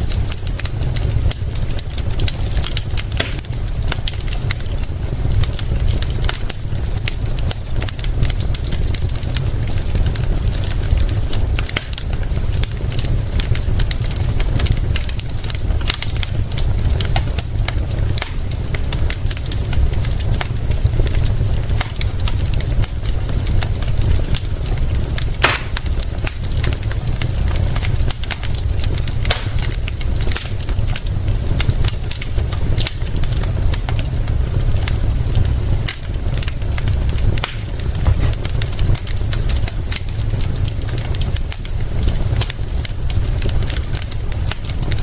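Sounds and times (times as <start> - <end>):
constant low rumble: 0.0 - 45.0
wood fire crackling: 0.0 - 45.0
sharp pops: 25.4 - 25.8.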